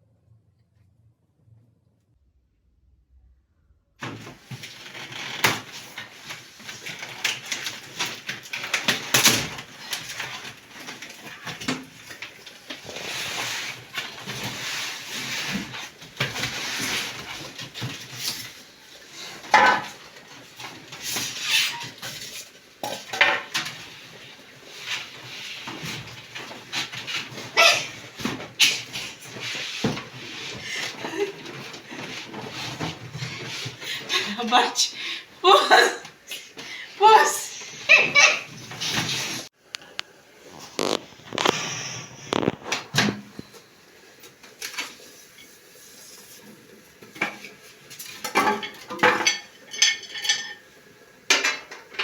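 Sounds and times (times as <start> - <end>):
dishes and cutlery clinking: 47.1 - 50.7, 51.3 - 52.0.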